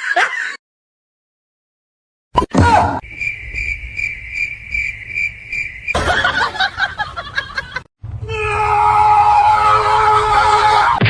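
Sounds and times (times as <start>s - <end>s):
high even chirping: 3.0s - 6.2s
steady tones: 3.0s - 6.8s.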